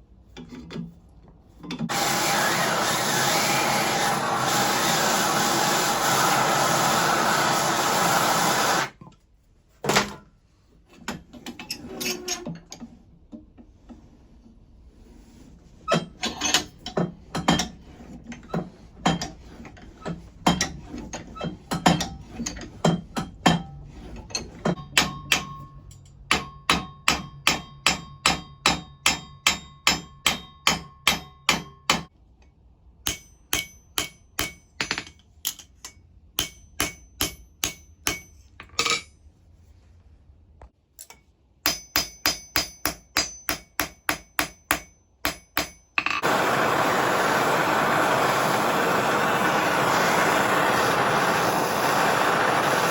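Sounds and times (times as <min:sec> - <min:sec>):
hammer striking steel on anvil: 0:24.7 - 0:32.1, 0:33.0 - 0:39.1, 0:41.0 - 0:46.9.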